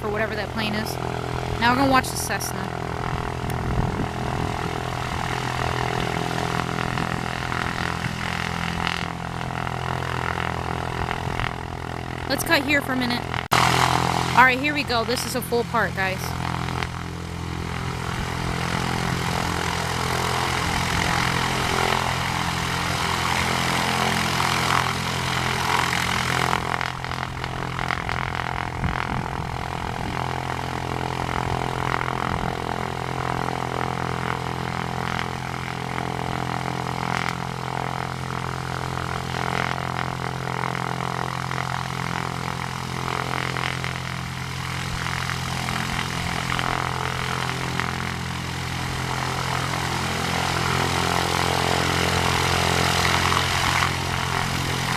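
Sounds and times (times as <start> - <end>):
propeller engine running: 0.0 - 54.9.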